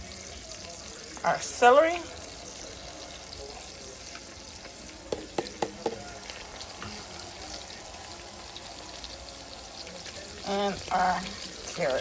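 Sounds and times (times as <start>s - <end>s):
vegetables sizzling in butter: 0.0s - 12.0s
utensil knocking against pot: 5.1s - 6.0s.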